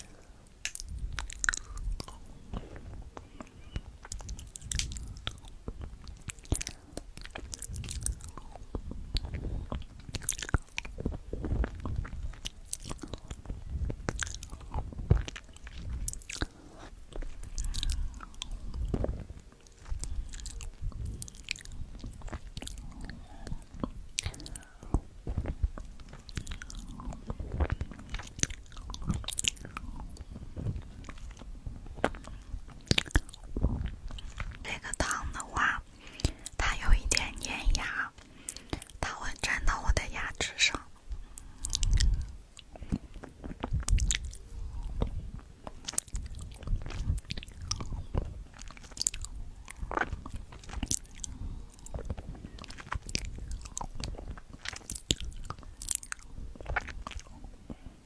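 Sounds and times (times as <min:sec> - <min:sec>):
person chewing food: 0:00.0 - 0:58.0.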